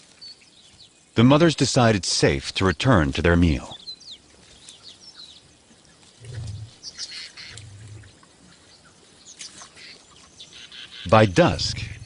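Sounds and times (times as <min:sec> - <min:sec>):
birds chirping: 0:00.0 - 0:12.0
short low rumbles: 0:06.2 - 0:06.8, 0:07.6 - 0:08.1.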